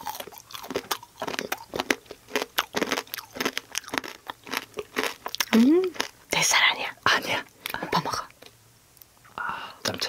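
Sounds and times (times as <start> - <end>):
people crunching candy: 0.0 - 6.2.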